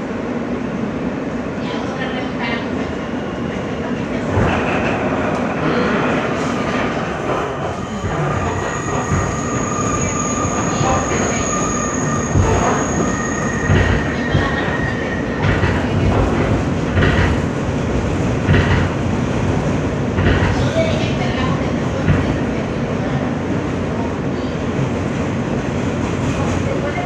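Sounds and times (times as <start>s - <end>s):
subway wheels rumbling on rail: 0.0s - 27.0s
high-pitched wheel squeal: 8.4s - 15.6s
clacks over rail joints: 15.4s - 17.5s, 18.4s - 19.0s, 20.2s - 20.6s.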